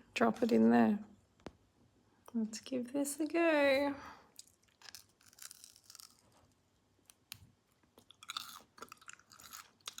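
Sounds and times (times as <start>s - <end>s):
chewing dried fruit crunching: 4.3s - 6.4s, 7.8s - 10.0s.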